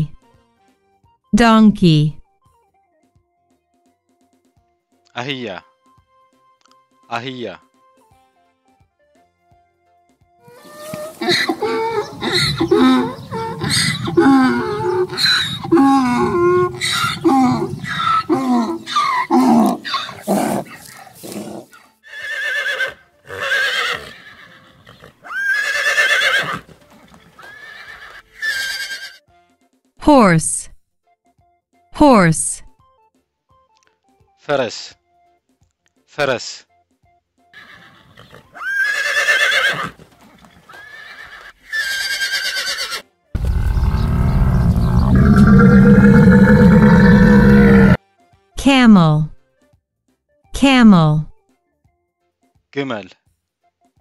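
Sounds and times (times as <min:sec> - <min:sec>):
donkey braying: 0:10.4 - 0:29.2, 0:37.6 - 0:48.0
horse whinnying: 0:10.5 - 0:29.2, 0:37.6 - 0:48.0.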